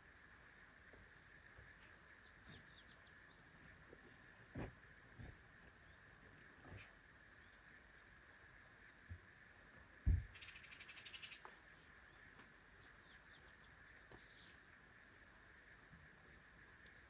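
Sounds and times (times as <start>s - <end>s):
dull thump: 10.0s - 10.4s.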